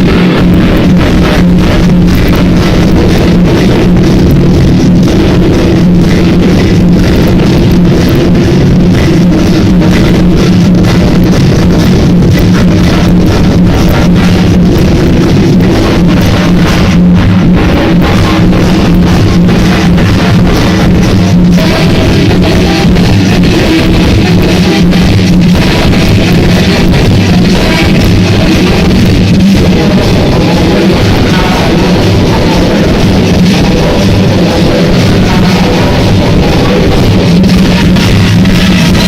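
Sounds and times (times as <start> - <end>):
loud music with guitar and drums: 0.0 - 39.0.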